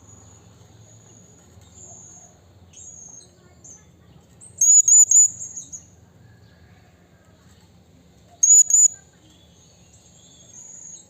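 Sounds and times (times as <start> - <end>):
parrot high sharp calls: 4.6 - 5.4, 8.4 - 8.9.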